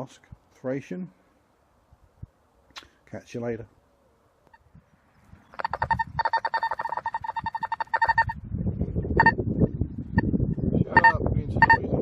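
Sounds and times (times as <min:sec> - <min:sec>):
metal detector short beeps: 0:10.9 - 0:11.8.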